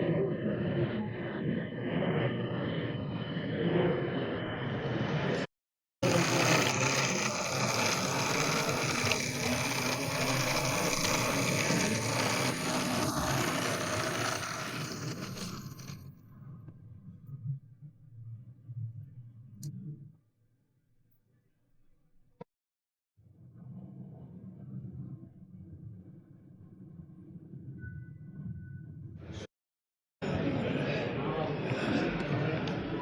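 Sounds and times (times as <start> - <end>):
busy exhibition hall ambience: 30.2 - 33.0.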